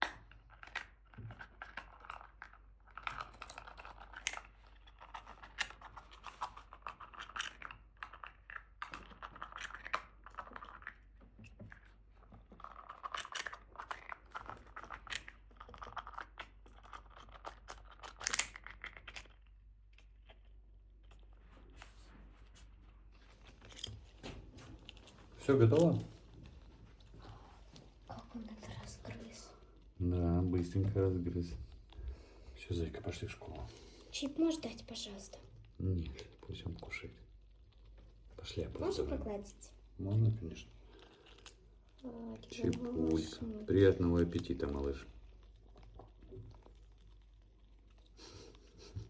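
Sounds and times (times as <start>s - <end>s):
rodent gnawing and crunching food: 0.0s - 49.0s.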